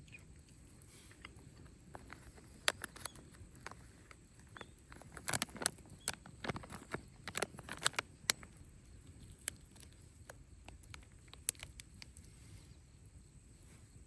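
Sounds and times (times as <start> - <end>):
campfire crackling and popping: 1.3 - 12.3.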